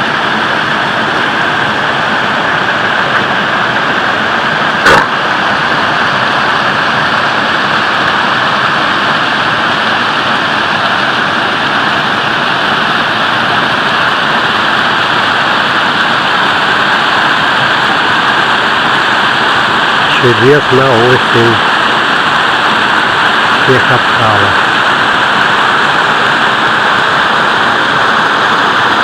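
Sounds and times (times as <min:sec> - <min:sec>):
waterfall rushing: 0:00.0 - 0:29.0
brief knock: 0:04.8 - 0:05.1.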